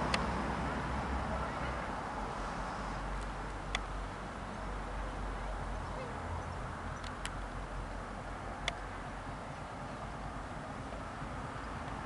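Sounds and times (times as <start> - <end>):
sharp clicks: 7.0 - 7.4.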